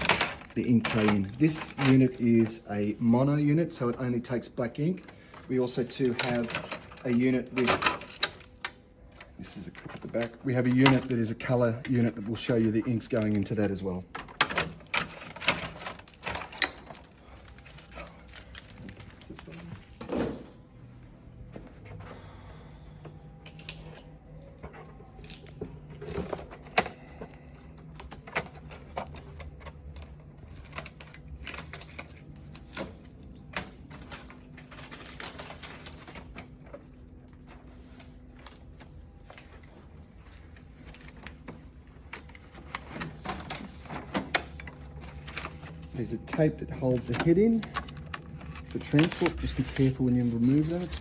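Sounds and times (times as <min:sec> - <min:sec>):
plastic printer parts clicking: 0:05.0 - 0:19.8, 0:40.8 - 0:51.0.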